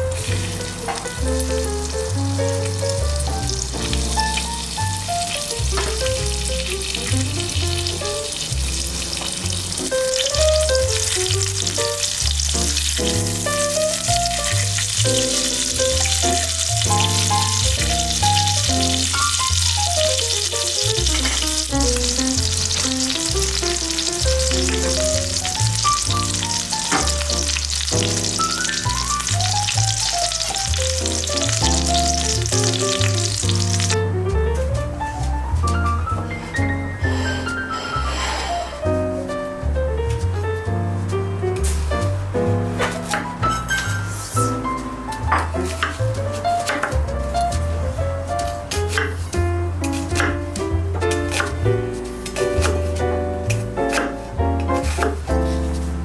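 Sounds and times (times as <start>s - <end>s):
chicken sizzling in a pan: 0.0s - 34.0s, 41.6s - 46.9s
background music with bass line: 0.0s - 37.8s, 38.6s - 56.0s.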